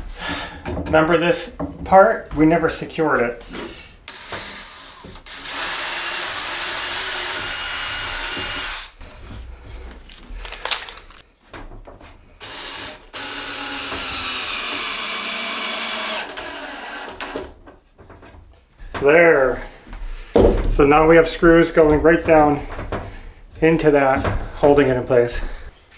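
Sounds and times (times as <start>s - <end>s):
power drill driving screws: 4.1s - 9.0s, 12.4s - 17.6s.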